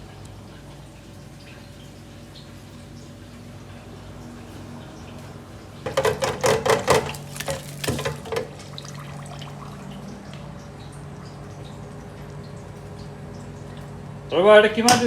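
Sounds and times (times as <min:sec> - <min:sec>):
low kitchen hum: 0:00.0 - 0:15.0
metal kitchenware clattering: 0:05.9 - 0:08.6.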